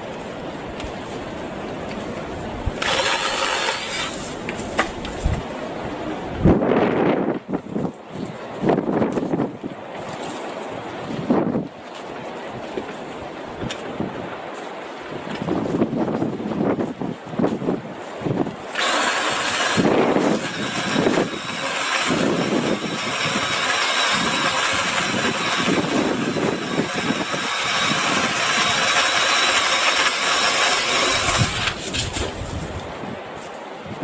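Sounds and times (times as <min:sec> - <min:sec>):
power saw cutting branch: 0:02.7 - 0:05.5, 0:18.6 - 0:32.9.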